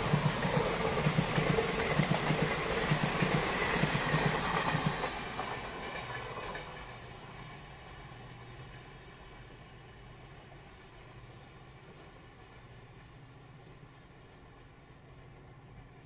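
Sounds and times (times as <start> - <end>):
train wheels clattering on track: 0.0 - 9.6.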